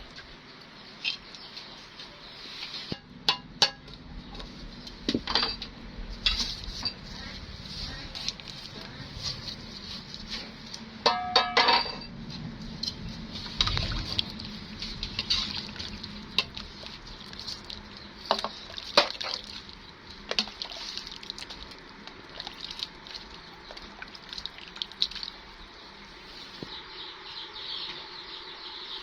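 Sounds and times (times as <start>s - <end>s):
utensils clinking against dishes: 10.4s - 12.2s.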